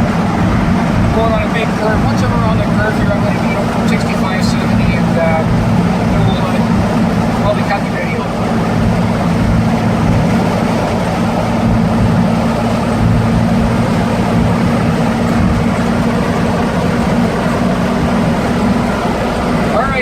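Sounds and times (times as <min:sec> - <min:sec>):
road and tyre noise: 0:00.0 - 0:20.0
truck engine pulling steadily: 0:00.0 - 0:20.0.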